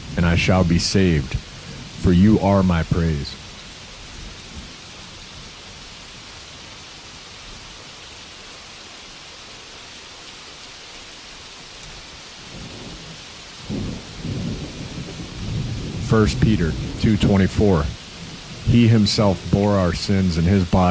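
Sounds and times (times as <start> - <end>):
thunder rumble: 0.0 - 4.8, 12.4 - 20.9
rainfall: 0.0 - 20.9.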